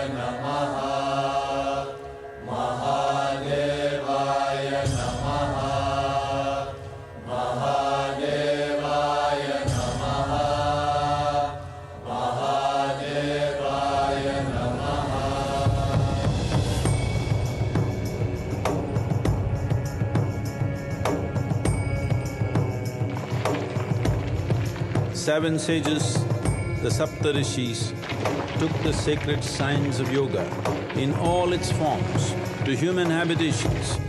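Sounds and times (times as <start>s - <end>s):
chanted mantra: 0.0s - 16.6s.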